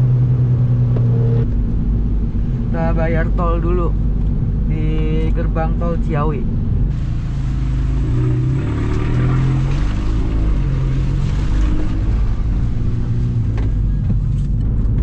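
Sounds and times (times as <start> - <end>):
car engine accelerating: 0.0 - 15.0
tyres hissing on wet road: 6.9 - 13.4.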